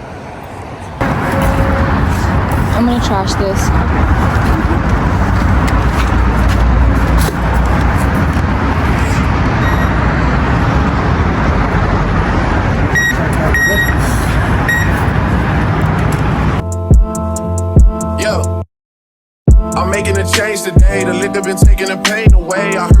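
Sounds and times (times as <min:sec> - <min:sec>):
engine rumble: 0:00.0 - 0:16.6
high electronic beeps: 0:12.9 - 0:14.0, 0:14.6 - 0:15.0.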